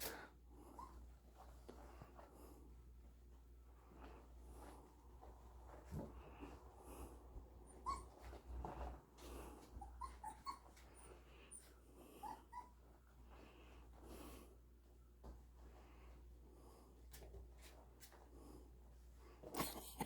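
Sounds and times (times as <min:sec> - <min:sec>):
puppies snuffling breaths: 0:03.8 - 0:14.8
puppies squeaking and whimpering: 0:07.7 - 0:08.4, 0:09.6 - 0:12.8.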